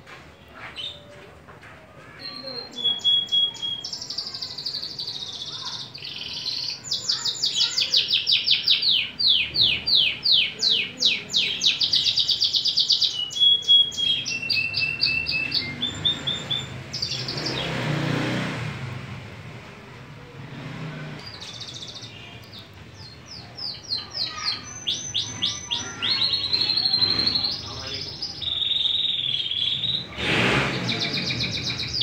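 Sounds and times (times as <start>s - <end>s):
canary singing trills: 2.1s - 17.9s, 21.2s - 32.0s
short noisy burst: 30.0s - 31.2s.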